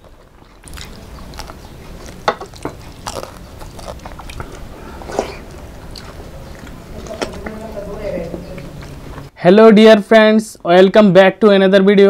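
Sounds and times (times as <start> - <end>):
chewing and crunching food: 0.0 - 9.3.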